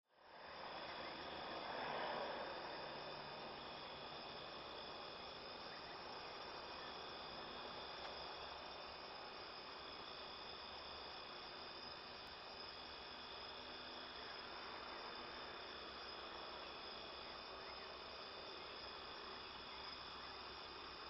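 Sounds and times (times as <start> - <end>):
insect chorus: 0.1 - 21.0.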